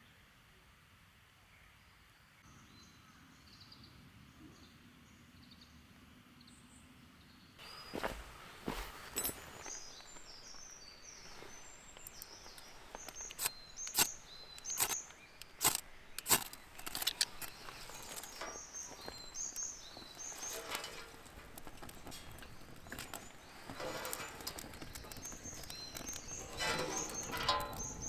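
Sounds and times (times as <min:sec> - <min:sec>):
small birds chirping: 0:01.6 - 0:28.0
sharp clicks: 0:11.9 - 0:28.0.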